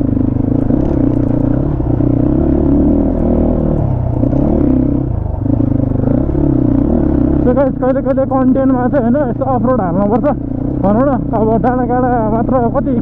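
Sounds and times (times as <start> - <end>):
motorcycle engine running: 0.0 - 13.0
clatter: 0.1 - 13.0.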